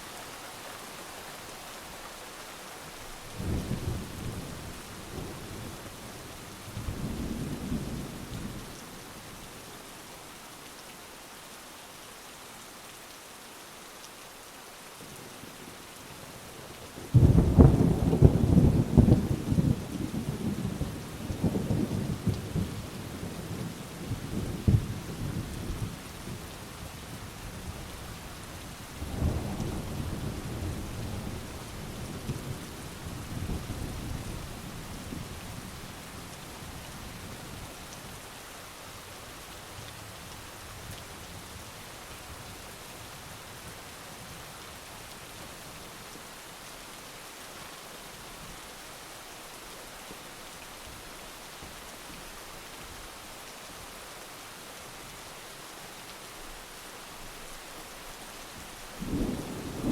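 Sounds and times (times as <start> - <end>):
heavy rain: 0.0 - 59.9
thunder rumbling: 59.0 - 59.9.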